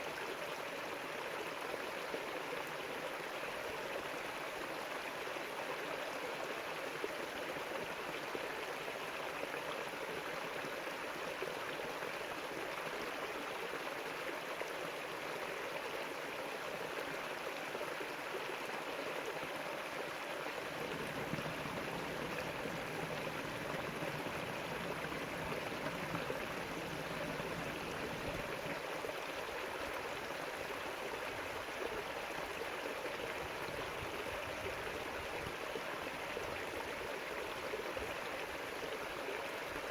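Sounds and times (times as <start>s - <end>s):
river water rushing: 20.4s - 32.1s.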